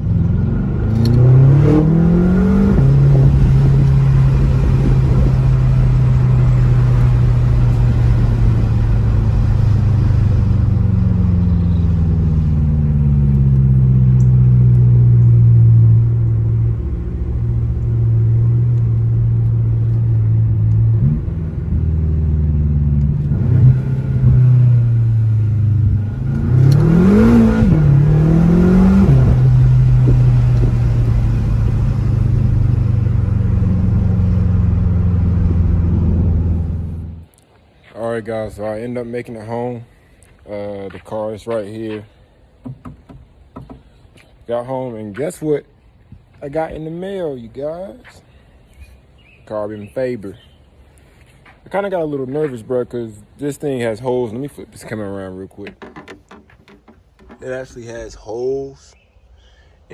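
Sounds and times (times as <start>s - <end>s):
car engine droning: 0.0s - 37.4s
engine throttle blips: 0.0s - 37.4s.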